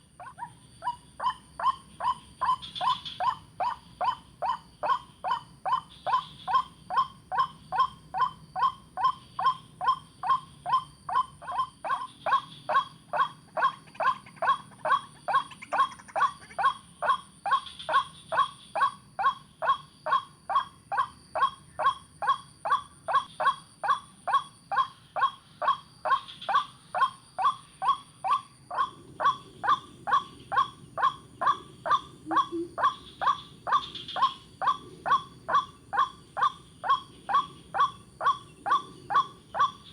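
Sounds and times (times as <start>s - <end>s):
waterhen calling: 28.3s - 39.8s.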